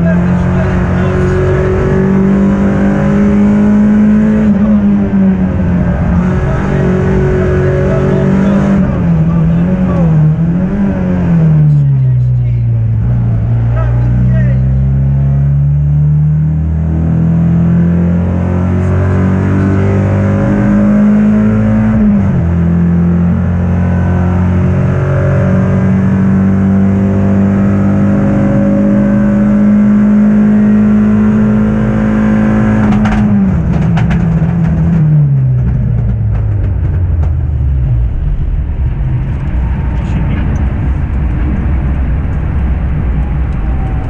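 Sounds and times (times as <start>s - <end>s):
car engine revving high: 0.0s - 36.2s
engine knocks: 32.8s - 44.0s.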